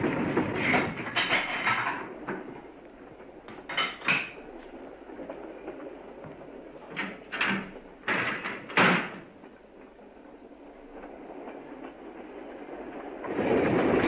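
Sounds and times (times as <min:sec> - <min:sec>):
clanks and knocks: 0:00.0 - 0:10.0
train rumbling: 0:00.0 - 0:14.0.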